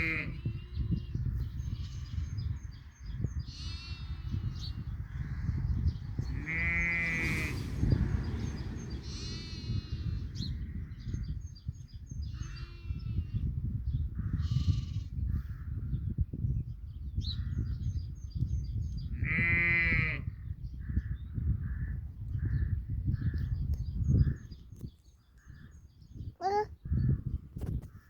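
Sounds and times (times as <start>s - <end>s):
sheep and lambs bleating: 0.0s - 2.4s, 3.5s - 4.7s, 6.2s - 7.6s, 9.0s - 10.3s, 12.4s - 13.4s, 14.3s - 15.2s, 19.2s - 20.3s
birds chirping: 22.4s - 27.2s.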